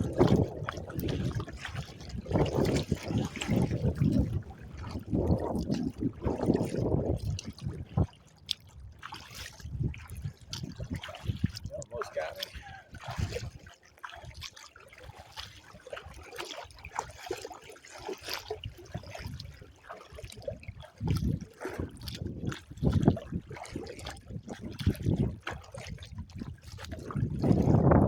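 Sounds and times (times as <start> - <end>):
wind buffeting microphone: 0.0 - 13.6, 20.3 - 28.0
water splashing against kayak: 0.0 - 28.0.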